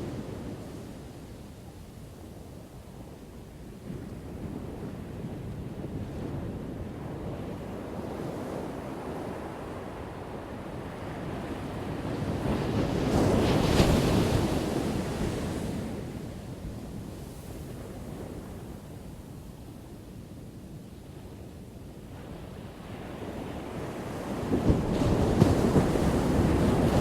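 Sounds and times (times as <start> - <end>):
wave breaking on shore: 24.5 - 27.0
surf rushing: 25.2 - 27.0.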